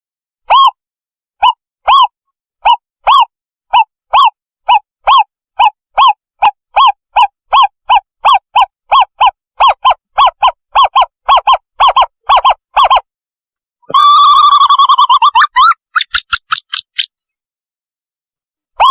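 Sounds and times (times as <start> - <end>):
owl hooting lure call: 0.5 - 0.8, 1.4 - 13.1.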